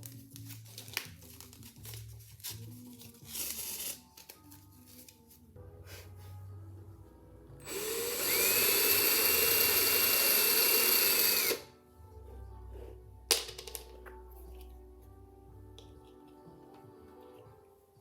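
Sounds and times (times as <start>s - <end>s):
faint background music: 0.0s - 18.0s
electric drill whining: 7.6s - 11.7s.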